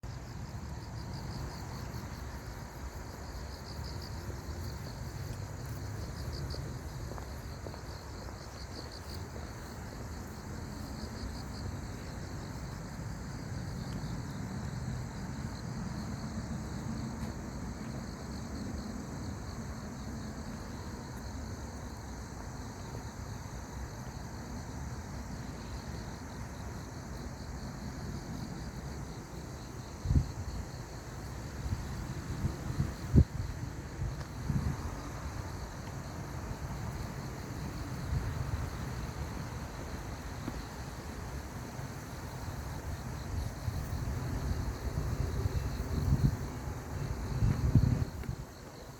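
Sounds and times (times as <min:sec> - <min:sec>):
insects chirping in trills: 0:00.0 - 0:48.9.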